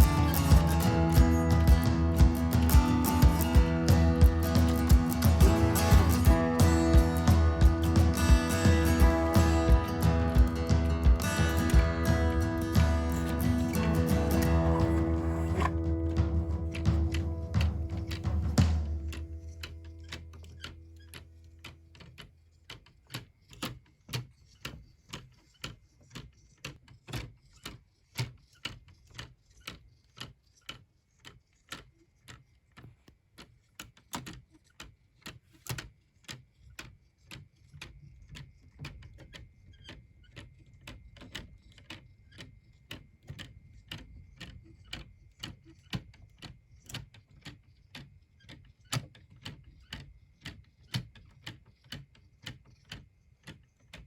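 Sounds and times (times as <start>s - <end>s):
mechanical clock ticking: 0.0s - 32.8s.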